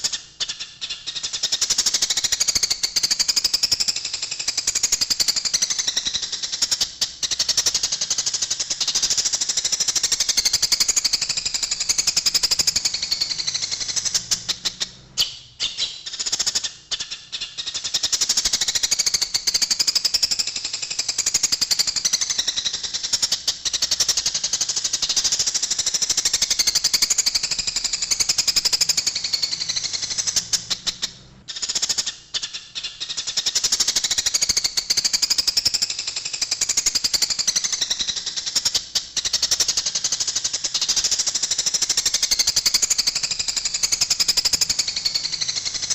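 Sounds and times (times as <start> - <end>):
sparrows chattering harshly: 5.2 - 19.9.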